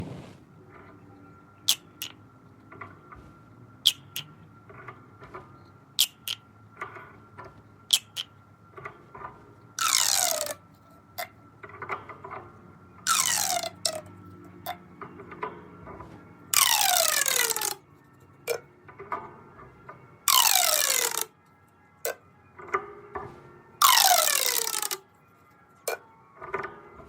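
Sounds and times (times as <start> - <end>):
pop tube toy snapping: 1.7 - 2.2, 3.9 - 4.3, 6.0 - 6.4, 9.8 - 10.6, 13.1 - 14.0, 16.6 - 17.8, 20.3 - 21.3, 23.8 - 25.0.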